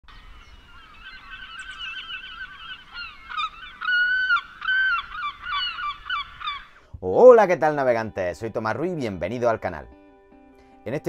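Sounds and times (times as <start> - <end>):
birds chattering harsh calls: 0.1 - 6.8
bird drawn-out calls: 0.1 - 6.9.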